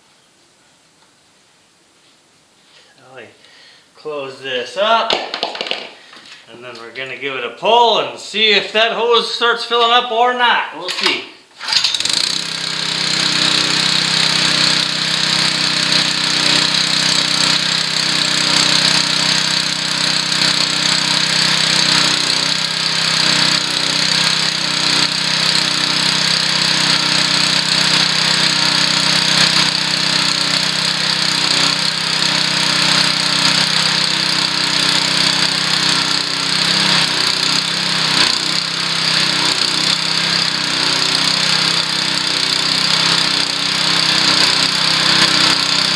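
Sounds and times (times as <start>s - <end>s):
small pump engine running: 11.6s - 45.9s.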